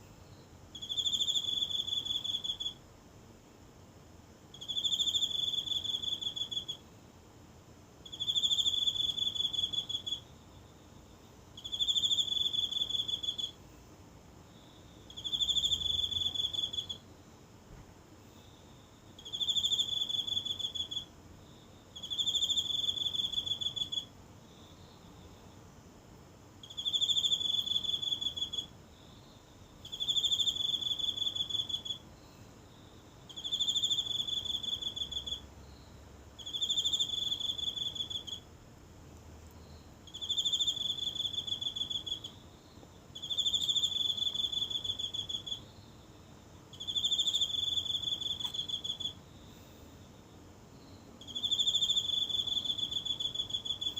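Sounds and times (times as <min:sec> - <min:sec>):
insect trilling: 0:00.7 - 0:02.8, 0:04.5 - 0:06.8, 0:08.0 - 0:10.2, 0:11.6 - 0:13.6, 0:15.0 - 0:17.0, 0:19.2 - 0:21.1, 0:21.9 - 0:24.1, 0:26.6 - 0:38.5, 0:39.6 - 0:45.8, 0:46.7 - 0:49.2, 0:50.8 - 0:53.9.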